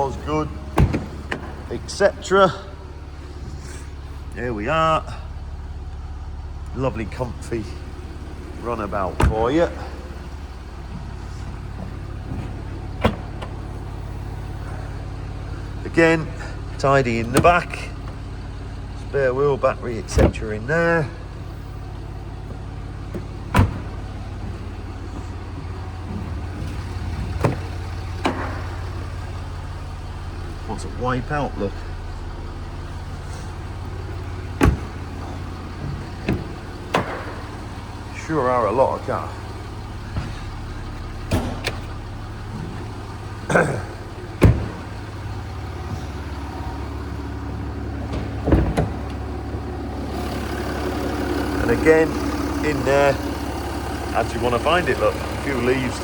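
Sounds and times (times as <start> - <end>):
diesel engine idling: 0.0 - 56.0
sharp thumps: 33.3 - 37.8.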